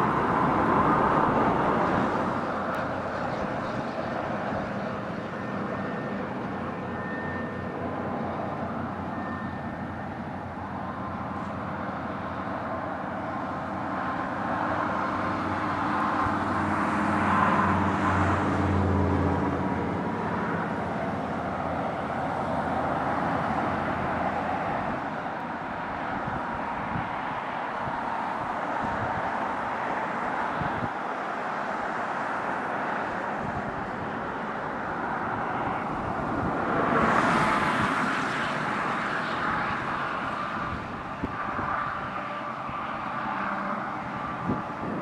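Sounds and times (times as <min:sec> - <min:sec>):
road traffic noise: 0:00.0 - 0:45.0
heavy vehicle engine passing: 0:32.1 - 0:45.0.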